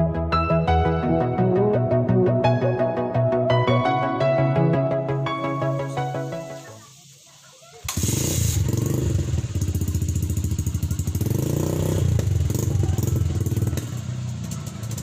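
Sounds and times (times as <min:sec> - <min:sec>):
motorcycle engine idling fast: 0:07.8 - 0:15.0.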